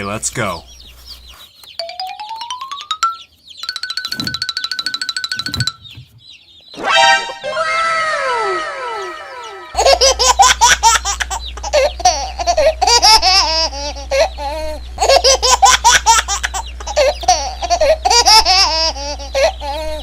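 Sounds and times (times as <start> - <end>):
descending ringing cartoon effect: 6.8 - 10.3
baby laughing: 6.8 - 20.0
steady low hum: 7.3 - 20.0.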